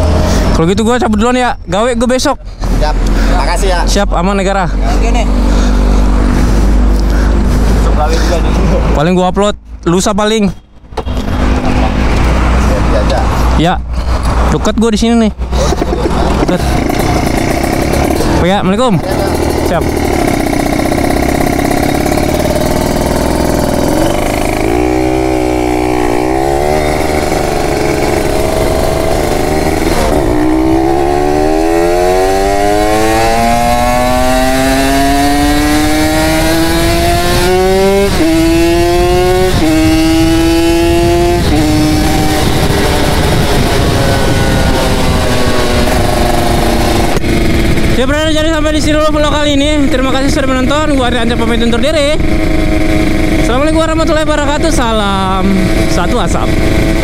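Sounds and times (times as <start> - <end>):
motorcycle engine revving: 10.9 - 14.6, 15.4 - 57.0.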